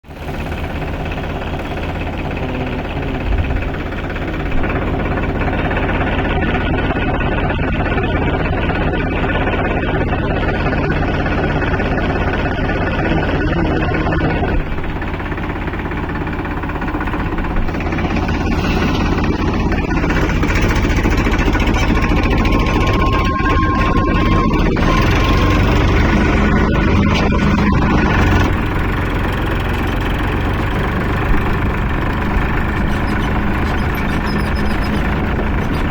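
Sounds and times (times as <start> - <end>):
heavy diesel engine running: 0.0 - 35.9
thin high tone: 17.7 - 35.9.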